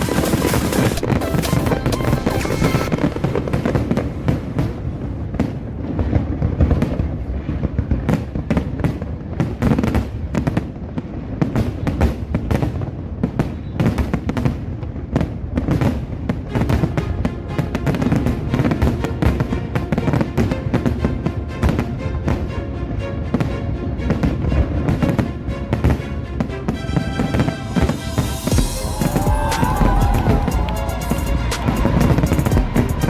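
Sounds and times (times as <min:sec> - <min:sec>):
loud show music: 0:00.0 - 0:03.9, 0:26.8 - 0:33.0
fireworks bursting: 0:00.0 - 0:16.8, 0:26.8 - 0:33.0.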